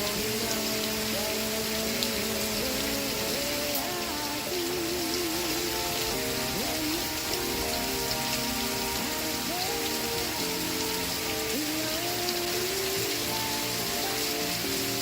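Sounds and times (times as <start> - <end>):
faint television music: 0.0 - 15.0
steady rain falling: 0.0 - 15.0.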